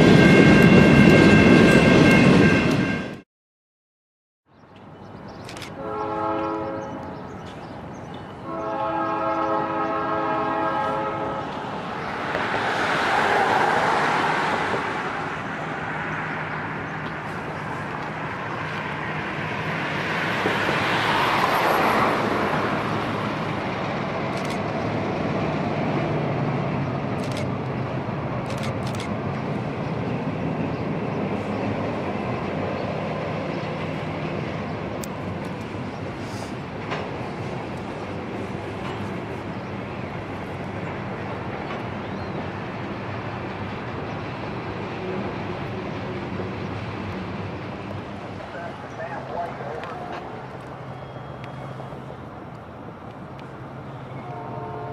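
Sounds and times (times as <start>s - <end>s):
diesel locomotive engine drone: 0.0s - 3.2s, 4.6s - 54.9s
train wheel noise: 4.8s - 54.6s
locomotive horn blasts: 5.7s - 7.2s, 8.4s - 11.6s, 54.1s - 54.9s.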